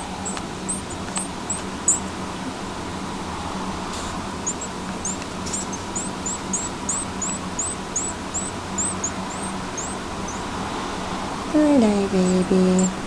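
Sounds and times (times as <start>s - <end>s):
baby bird high chirps: 0.0s - 2.1s, 4.4s - 10.5s
steady low hum: 0.0s - 13.0s.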